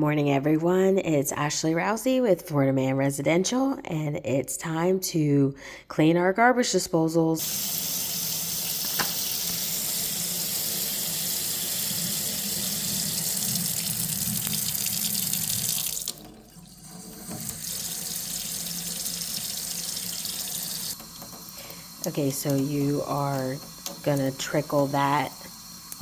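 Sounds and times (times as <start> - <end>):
faucet running into a sink: 7.4 - 26.0.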